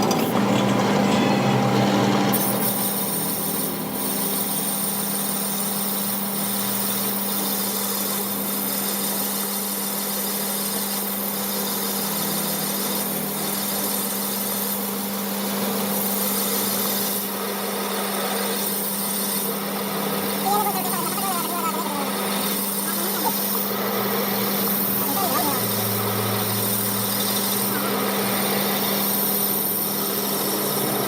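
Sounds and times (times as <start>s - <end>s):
machine humming: 0.0s - 4.5s, 19.3s - 31.0s.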